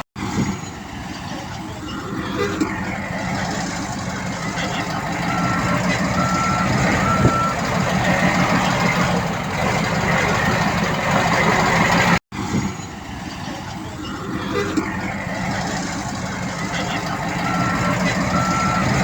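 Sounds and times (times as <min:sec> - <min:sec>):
heavy diesel machinery running: 0:00.0 - 0:12.2, 0:14.1 - 0:19.0
reversing alarm beep: 0:04.5 - 0:08.3, 0:16.7 - 0:19.0.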